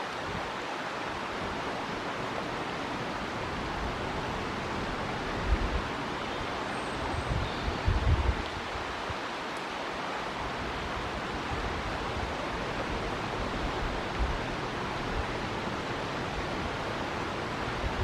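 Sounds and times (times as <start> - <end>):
river water rushing: 0.0 - 18.0
wind gust on microphone: 3.2 - 6.1, 7.0 - 9.2, 10.3 - 18.0.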